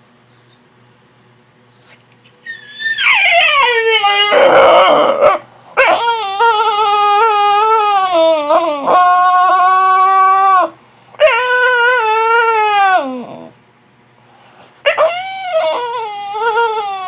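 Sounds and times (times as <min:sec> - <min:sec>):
puppy howling: 0:02.4 - 0:13.6, 0:14.9 - 0:17.0.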